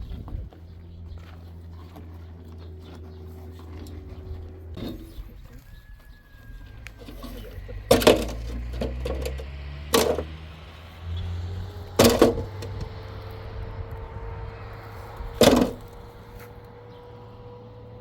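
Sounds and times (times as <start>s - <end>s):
low engine drone: 0.0s - 5.5s
loud sharp knocks ringing: 12.0s - 12.9s, 15.4s - 15.8s.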